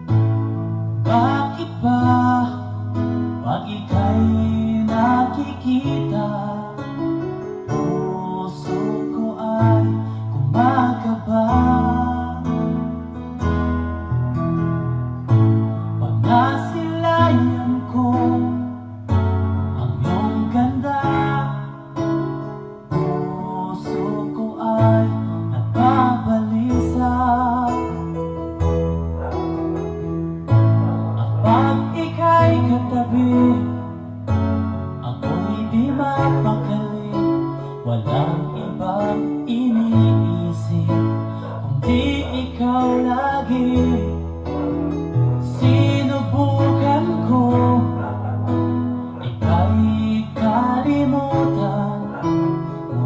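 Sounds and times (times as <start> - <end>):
song over loudspeakers: 0.0 - 53.0
heavy bass line: 25.0 - 37.4.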